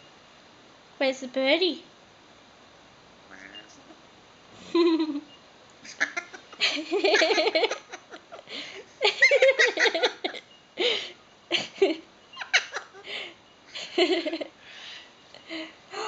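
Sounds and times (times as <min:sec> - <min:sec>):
parrot wavering calls: 0:03.3 - 0:03.9, 0:05.8 - 0:06.4.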